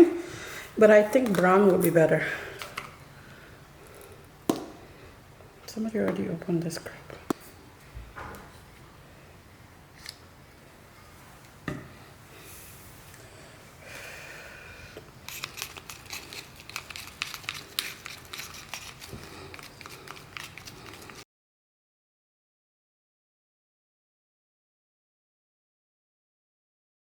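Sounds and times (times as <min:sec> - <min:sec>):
packaging crinkling: 0:15.3 - 0:21.2.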